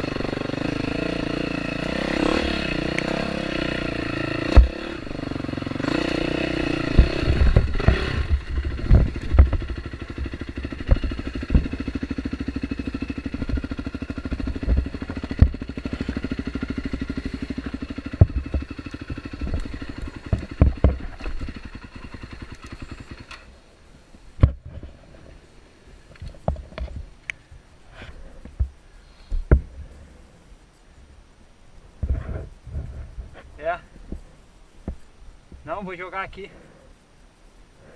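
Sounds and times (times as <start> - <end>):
dirt bike engine: 0.0 - 30.5
knocks and clatter over rocks: 6.8 - 12.0, 14.3 - 16.2, 17.6 - 23.2, 26.1 - 27.1.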